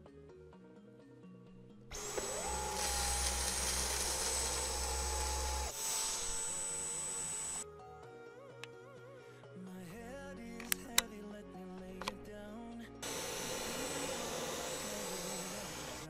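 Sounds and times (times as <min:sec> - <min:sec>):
stick vacuum motor whining: 0:01.9 - 0:07.6, 0:13.0 - 0:16.0.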